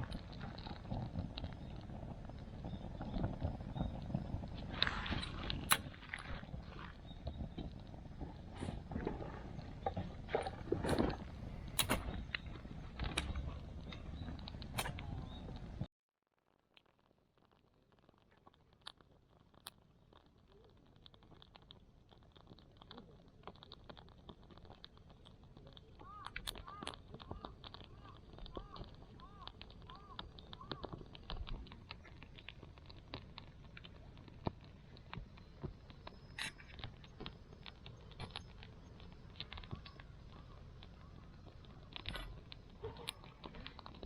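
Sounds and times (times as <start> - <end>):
wood fire crackling in stove: 0.0 - 15.9, 16.7 - 44.0
bird calling: 26.0 - 31.0.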